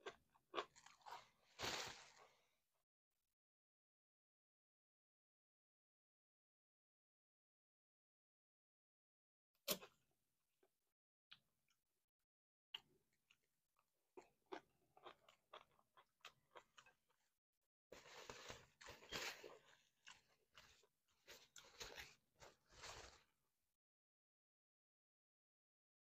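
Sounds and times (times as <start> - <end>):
chewing crunchy food: 0.0 - 2.4, 12.8 - 17.4, 18.0 - 23.3.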